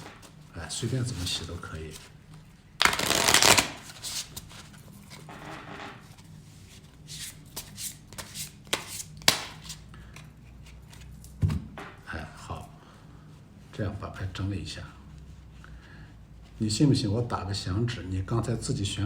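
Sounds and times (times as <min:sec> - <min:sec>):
playing cards being shuffled: 0:02.8 - 0:05.3, 0:06.7 - 0:09.9
card snap: 0:08.7 - 0:09.8.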